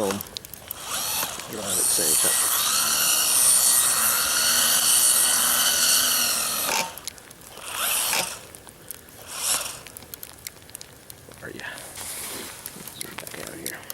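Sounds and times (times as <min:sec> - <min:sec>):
electric motor whining: 0:00.0 - 0:08.6, 0:09.2 - 0:10.0.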